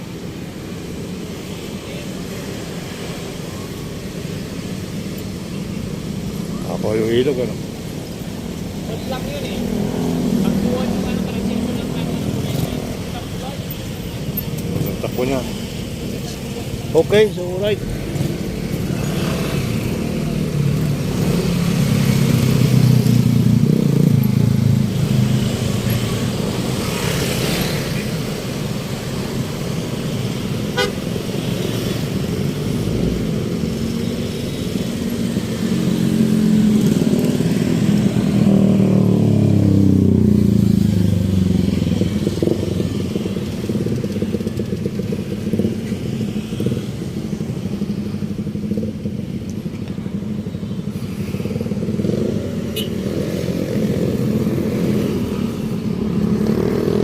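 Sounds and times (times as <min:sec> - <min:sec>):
vehicle engines running: 0:00.0 - 0:57.0
car horn toot: 0:30.8 - 0:31.1.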